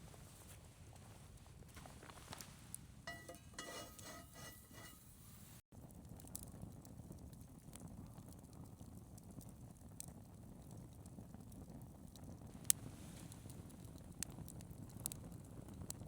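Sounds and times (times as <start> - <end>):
campfire crackling and popping: 5.8 - 16.0.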